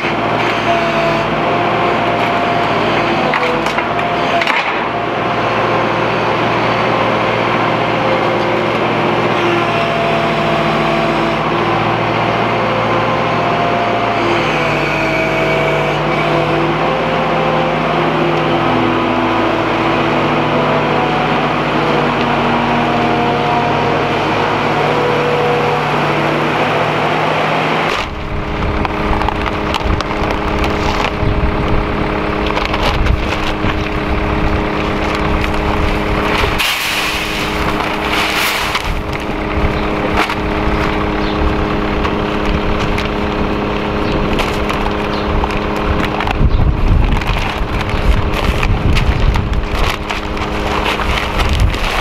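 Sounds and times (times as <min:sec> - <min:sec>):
tractor diesel engine running: 0:00.0 - 0:52.0
crackly rumble: 0:20.8 - 0:52.0
wind buffeting microphone: 0:28.0 - 0:36.6, 0:37.3 - 0:52.0.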